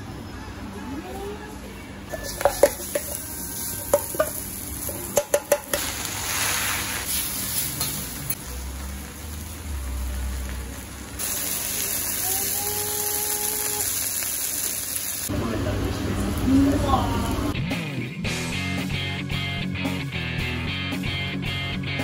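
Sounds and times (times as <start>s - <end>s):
metal clanks of bowl and spatulas: 2.1s - 5.9s, 7.7s - 8.1s
batter sizzling on griddle: 2.2s - 15.3s.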